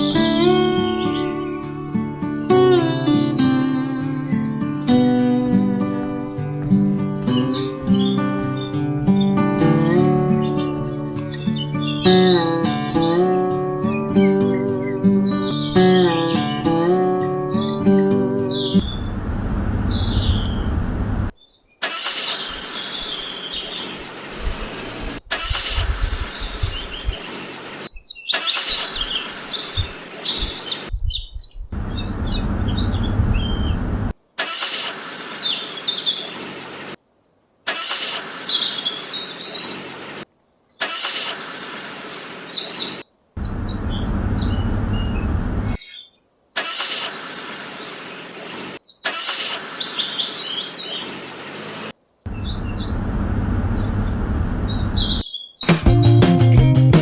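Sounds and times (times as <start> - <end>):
birds chirping: 0.0 - 37.2, 37.8 - 56.8
low engine-like rumble: 18.8 - 21.3, 31.8 - 34.1, 43.4 - 45.8, 52.3 - 55.2.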